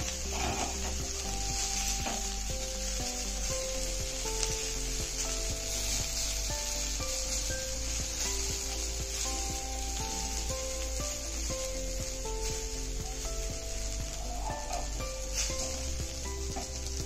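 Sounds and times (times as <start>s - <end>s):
spatula scraping: 0.0s - 2.3s
potatoes sizzling in oil: 0.0s - 17.0s.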